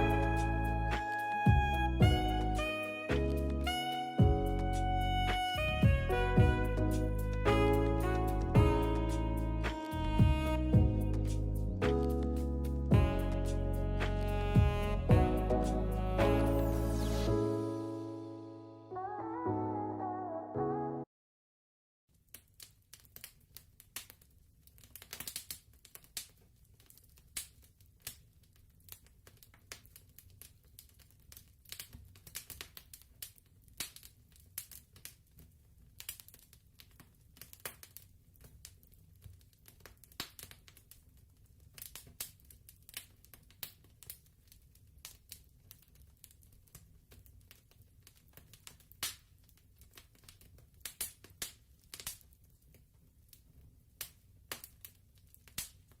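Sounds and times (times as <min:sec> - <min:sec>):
fireplace fire crackling: 0:00.0 - 0:18.1, 0:22.1 - 0:56.0
low steady rumble: 0:04.2 - 0:11.8.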